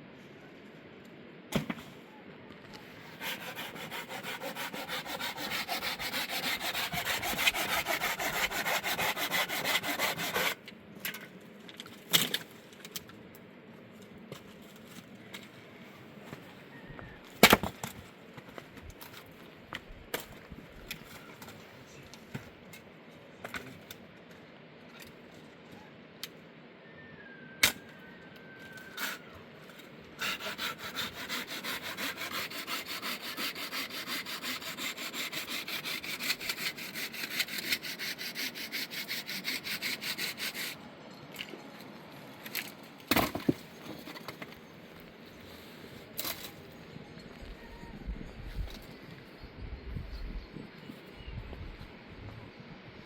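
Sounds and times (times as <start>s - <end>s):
hand saw cutting firewood: 3.1s - 10.6s, 30.2s - 40.8s.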